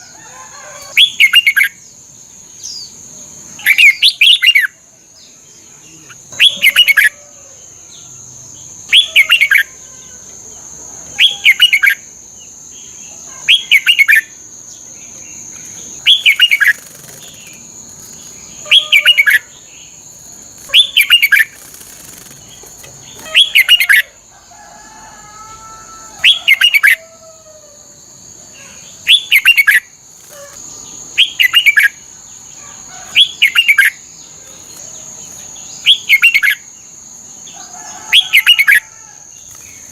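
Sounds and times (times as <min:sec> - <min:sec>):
bulbul singing: 0:11.2 - 0:24.3, 0:26.2 - 0:27.0, 0:28.6 - 0:32.5.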